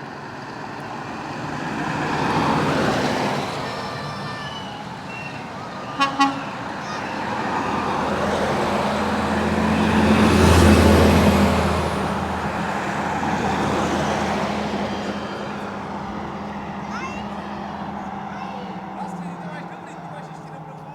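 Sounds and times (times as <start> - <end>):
truck driving past: 0.0 - 20.9
truck horn toots: 3.5 - 7.9.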